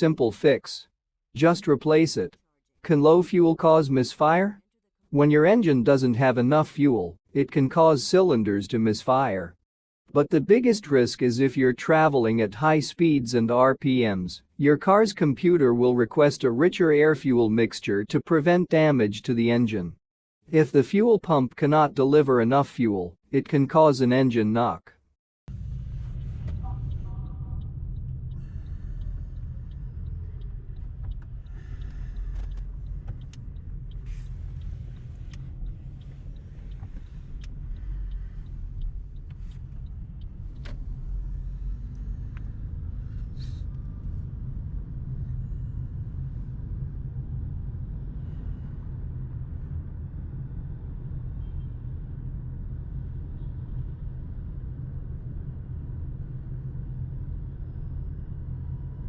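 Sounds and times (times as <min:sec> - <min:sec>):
car engine running: 0:25.5 - 0:46.4.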